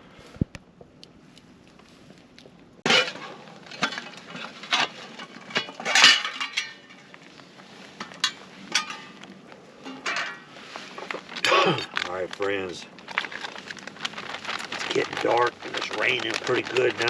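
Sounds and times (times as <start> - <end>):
rustling: 0.1 - 17.0
metal cookware clinking: 2.9 - 7.1, 8.0 - 9.2, 9.8 - 10.5.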